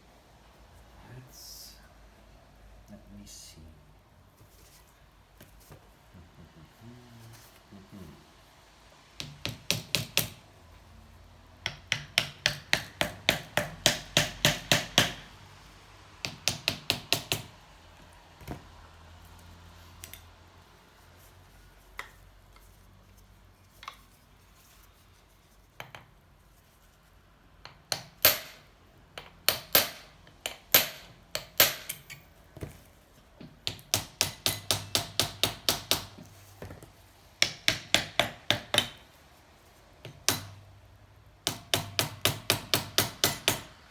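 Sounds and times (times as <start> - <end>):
hammer striking metal: 27.9 - 28.7, 29.5 - 32.2.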